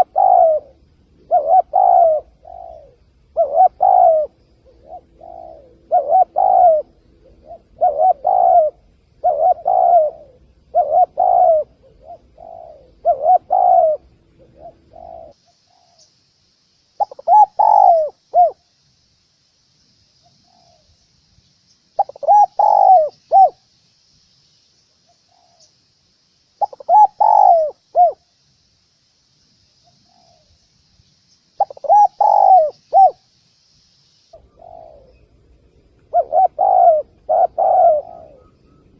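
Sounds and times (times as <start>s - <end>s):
dove cooing: 0.0s - 16.1s, 17.0s - 18.6s, 22.0s - 23.6s, 26.6s - 28.3s, 31.6s - 33.2s, 34.4s - 35.4s, 36.0s - 38.9s.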